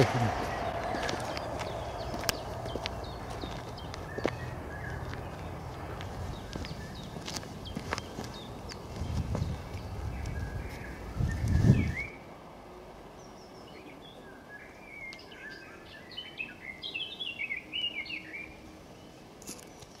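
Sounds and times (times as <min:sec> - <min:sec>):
songbird chirping: 0:00.0 - 0:20.0
microphone handling rumble: 0:09.0 - 0:12.0.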